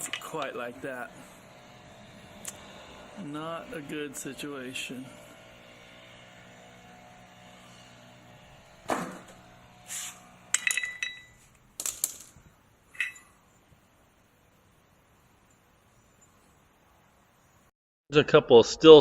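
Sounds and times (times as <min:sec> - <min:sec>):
metal parts knocking: 0:10.5 - 0:13.3
metal parts clinking: 0:10.5 - 0:13.4.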